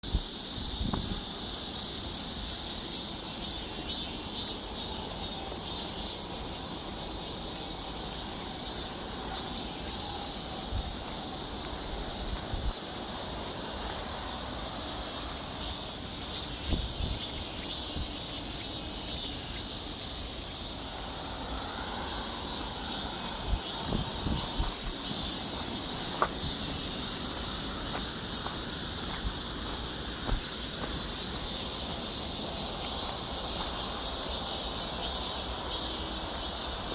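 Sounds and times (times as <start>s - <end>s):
insects chirring: 0.0s - 36.9s.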